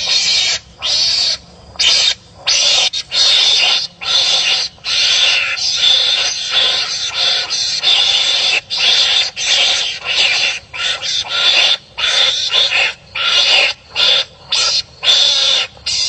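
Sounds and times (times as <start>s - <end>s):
rasping barking animal calls: 0.0s - 16.0s.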